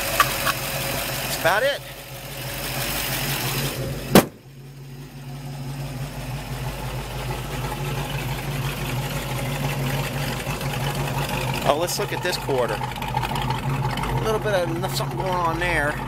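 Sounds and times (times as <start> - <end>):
car engine idling: 0.0 - 16.0
car hood slamming shut: 4.1 - 4.5.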